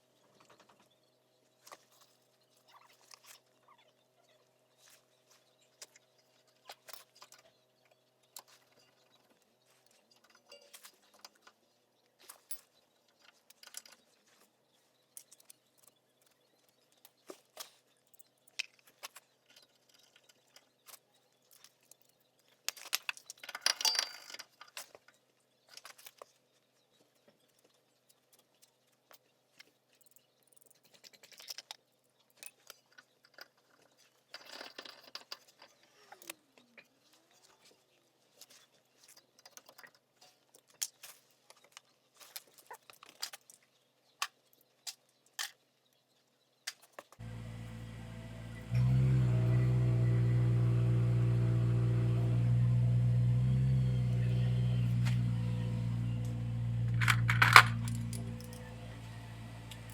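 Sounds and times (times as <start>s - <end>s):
small tools clicking and clattering: 12.2s - 14.4s, 15.2s - 25.1s, 29.9s - 31.8s, 32.4s - 37.6s, 56.2s - 58.8s.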